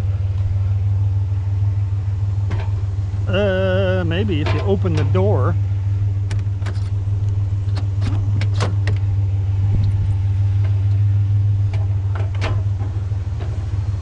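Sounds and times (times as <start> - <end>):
truck engine idling: 0.0 - 14.0
sharp clicks and knocks: 6.2 - 9.1.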